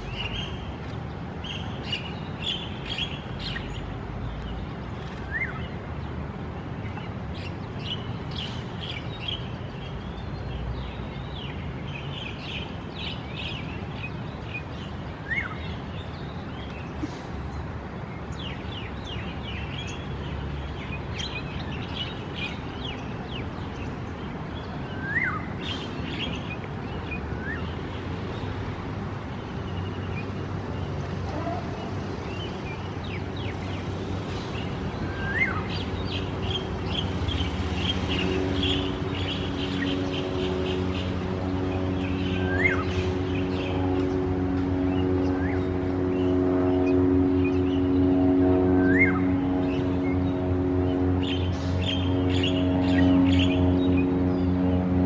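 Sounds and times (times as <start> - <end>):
birds chirping: 0.0 - 6.1, 29.2 - 54.9.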